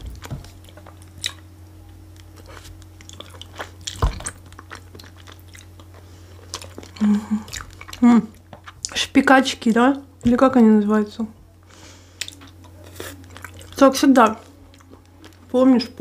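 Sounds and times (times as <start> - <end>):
chewing and biting food: 0.0 - 9.0, 12.2 - 15.5.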